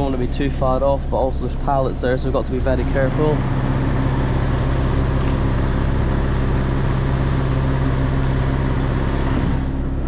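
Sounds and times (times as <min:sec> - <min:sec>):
lorry diesel engine at low revs: 0:00.0 - 0:10.0.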